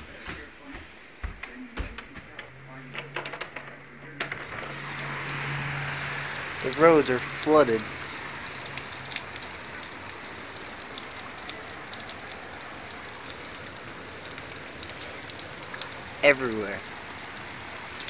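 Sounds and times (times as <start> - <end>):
heavy rain falling: 4.2 - 18.0.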